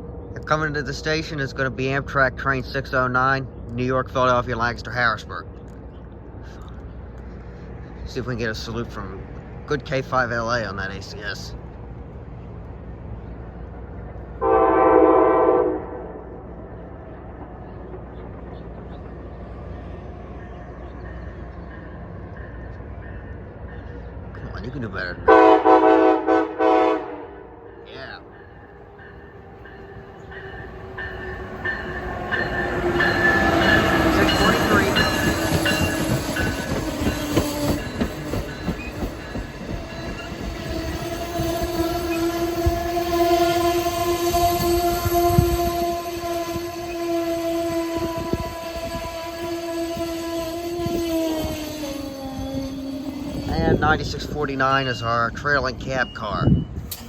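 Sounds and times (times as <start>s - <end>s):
train wheels rumbling on rail: 0.0s - 57.0s
locomotive air horn: 14.4s - 16.3s, 25.3s - 27.6s, 41.2s - 51.0s.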